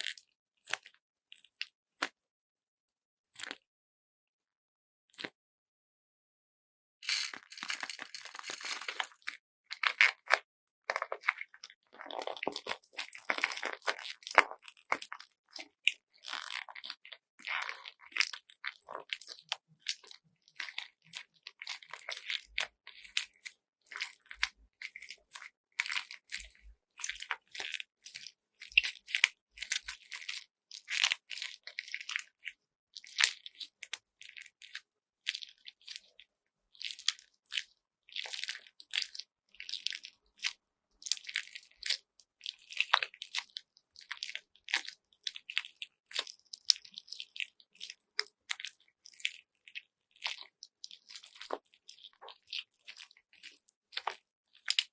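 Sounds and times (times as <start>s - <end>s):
slime beads crunching: 7.0s - 23.3s, 38.2s - 54.9s.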